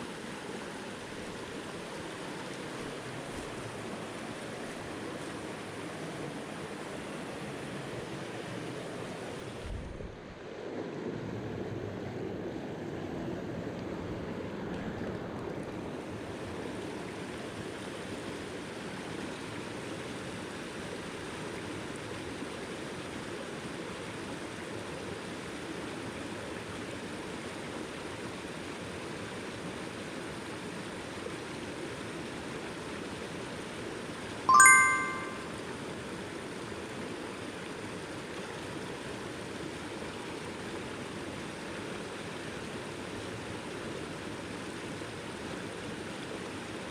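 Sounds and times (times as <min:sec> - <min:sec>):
stream water rushing: 0:00.0 - 0:09.8, 0:10.4 - 0:35.6
bright ringing ding: 0:34.5 - 0:35.6.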